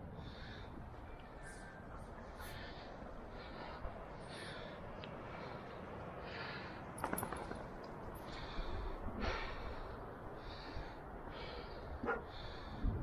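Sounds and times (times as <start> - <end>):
person breathing heavily: 0.1 - 7.3, 8.2 - 13.0
wind rumble on microphone: 7.4 - 13.0.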